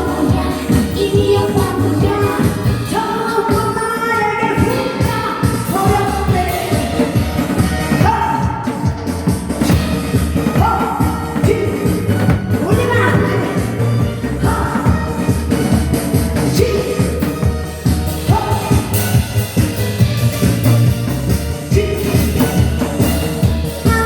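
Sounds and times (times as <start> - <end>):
amplified singing: 0.0 - 19.2
backing track with drum beat: 0.0 - 24.0.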